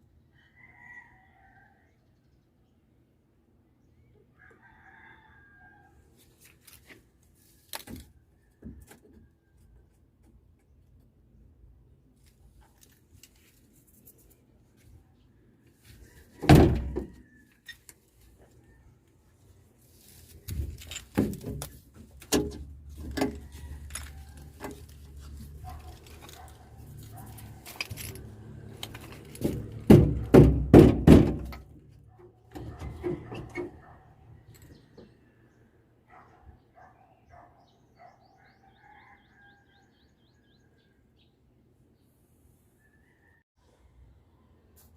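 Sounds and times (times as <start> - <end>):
knocks and clatter: 27.8 - 31.8
heavy thunks: 29.4 - 31.8.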